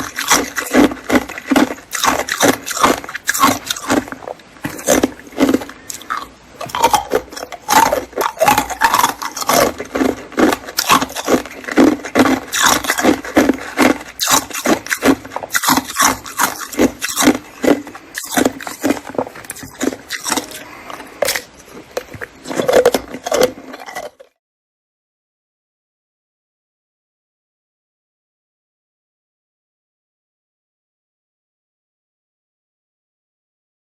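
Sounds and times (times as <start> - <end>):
person chewing ice: 0.0 - 24.4.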